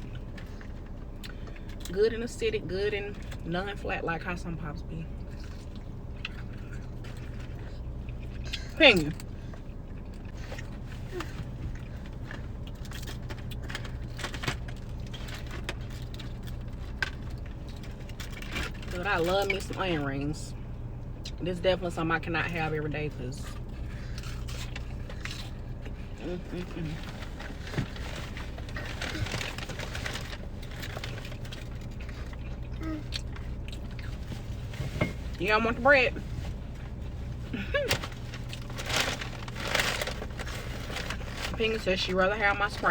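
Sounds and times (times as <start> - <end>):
low hum inside car: 0.0 - 42.9
chewing crunchy food: 5.1 - 19.0, 23.4 - 35.3.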